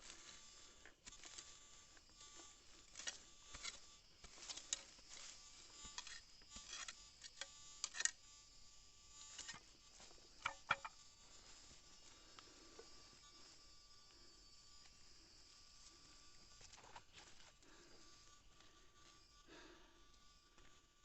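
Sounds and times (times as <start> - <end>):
footsteps through vegetation: 0.0 - 0.5, 2.6 - 5.8, 15.8 - 17.6
faint high-pitched hum: 0.0 - 21.0.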